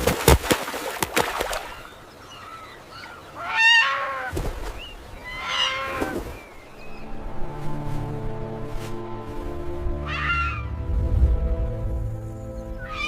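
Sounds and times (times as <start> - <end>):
loud harsh bird calls: 1.6 - 7.0, 10.0 - 10.8, 12.5 - 13.0.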